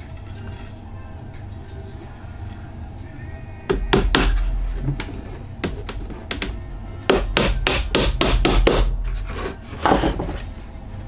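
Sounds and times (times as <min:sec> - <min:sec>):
hammer striking wood: 0:03.7 - 0:10.4.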